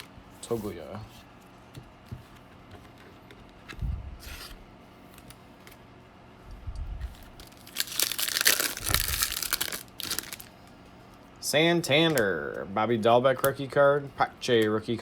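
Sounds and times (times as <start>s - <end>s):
foil wrapper tearing and crinkling: 7.1s - 10.5s.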